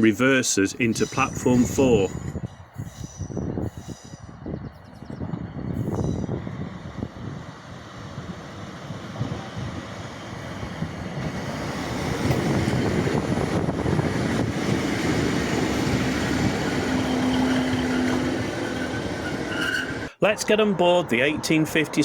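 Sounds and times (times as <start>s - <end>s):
train running into platform: 5.2s - 22.0s.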